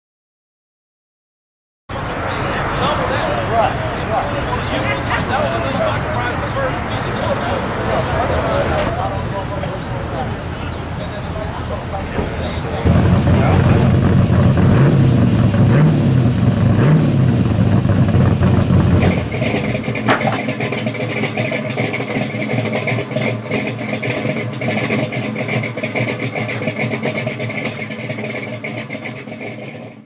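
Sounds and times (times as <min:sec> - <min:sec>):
car engine idling: 0:01.9 - 0:30.0
engine revving: 0:01.9 - 0:30.0
rapid crackling: 0:11.9 - 0:30.0.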